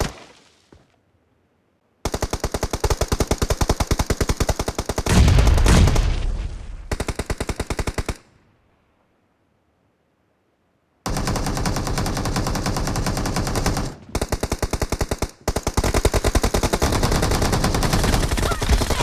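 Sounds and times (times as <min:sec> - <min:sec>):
video game automatic gunfire: 0:11.1 - 0:19.0.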